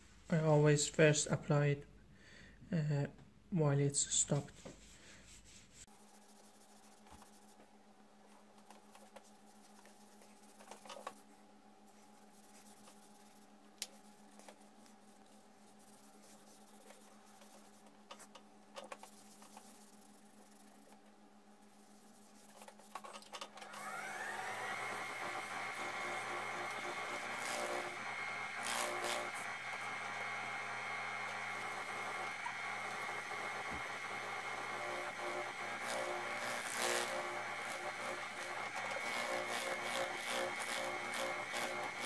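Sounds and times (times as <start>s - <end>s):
faint rubs and clicks: 4.3s - 23.6s
lathe motor whine: 23.5s - 42.0s.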